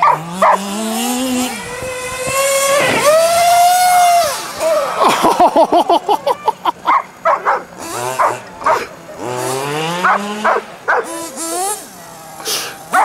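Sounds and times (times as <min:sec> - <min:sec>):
dog barking excitedly: 0:00.0 - 0:00.6, 0:06.9 - 0:08.9, 0:10.0 - 0:11.2.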